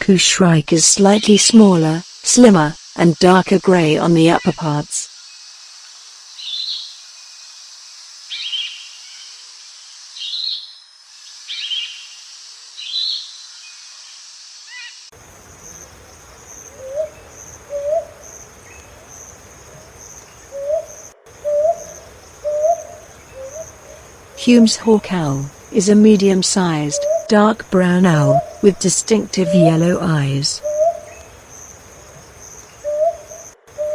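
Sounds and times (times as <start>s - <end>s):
high insect whine: 1.0s - 4.3s, 5.1s - 33.9s
owl hooting: 15.2s - 33.9s
bird shrill calls: 15.3s - 33.9s.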